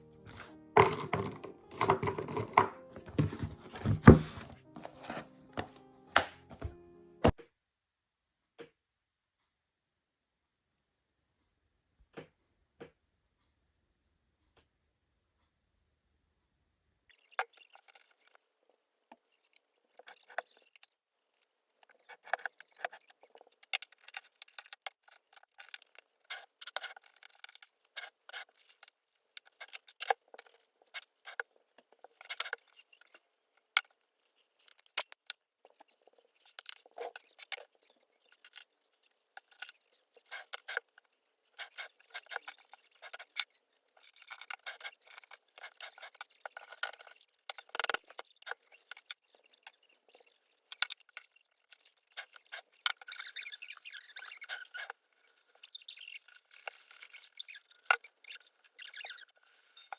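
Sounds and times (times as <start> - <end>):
objects clicking and clinking: 0.2 - 7.4.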